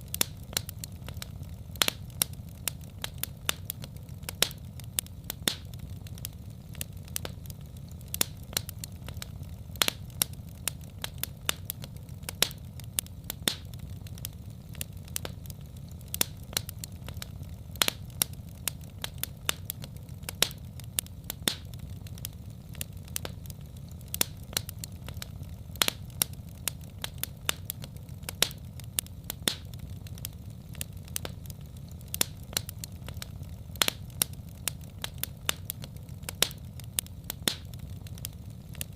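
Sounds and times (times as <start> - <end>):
fire crackling and popping: 0.0 - 38.9
low rumble of flames: 0.0 - 38.9.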